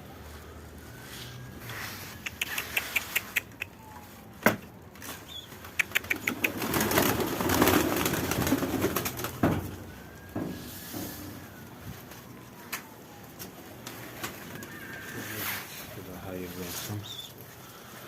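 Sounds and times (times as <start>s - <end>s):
pigeon flapping wings: 5.0s - 9.8s.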